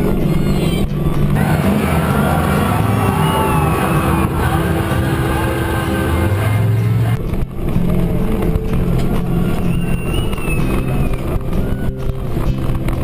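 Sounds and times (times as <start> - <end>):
diesel engine running loud: 0.0 - 13.0.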